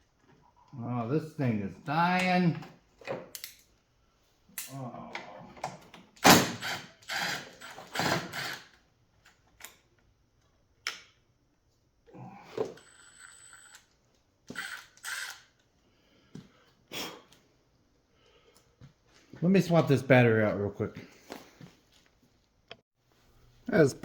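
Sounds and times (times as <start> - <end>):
clicks and clatter of handling parts: 3.0 - 3.8
impact wrench bursts: 6.2 - 8.7, 14.5 - 15.5.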